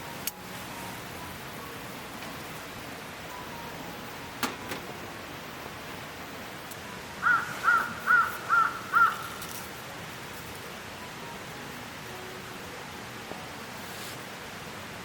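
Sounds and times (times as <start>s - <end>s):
background hiss: 0.0s - 15.0s
crow cawing: 7.2s - 9.4s.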